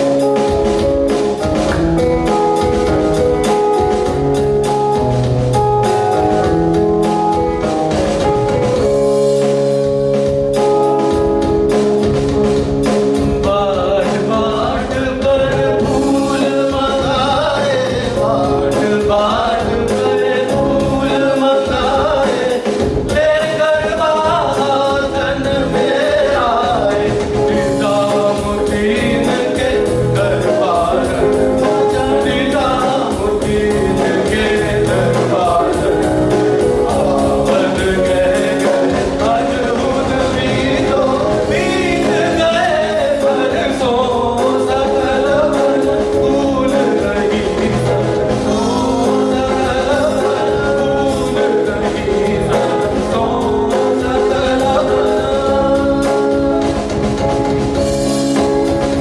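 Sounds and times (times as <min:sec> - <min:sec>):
steady percussion beat: 0:00.0 - 0:59.0
voices singing: 0:13.4 - 0:57.0.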